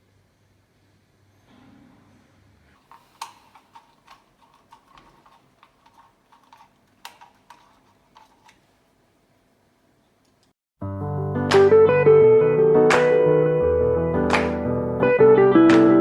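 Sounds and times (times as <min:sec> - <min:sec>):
light clicks and taps: 0:02.8 - 0:08.7.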